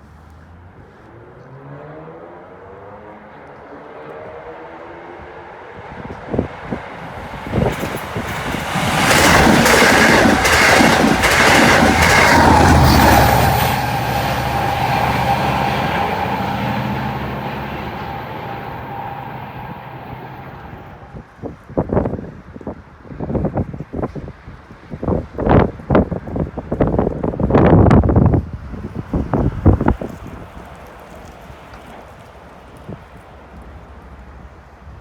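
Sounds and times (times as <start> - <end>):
train steady whine: 5.2 - 21.4
train wheels clacking on rails: 6.7 - 21.2.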